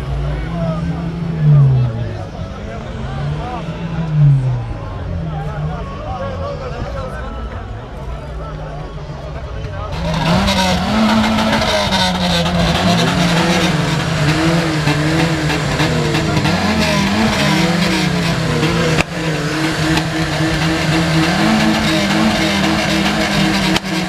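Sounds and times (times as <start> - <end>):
car engine revving: 9.8 - 24.0.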